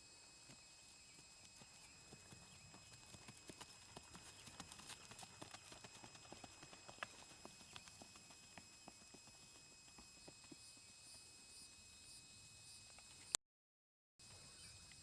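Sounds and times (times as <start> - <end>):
quick horse hoofbeats: 0.5 - 11.2.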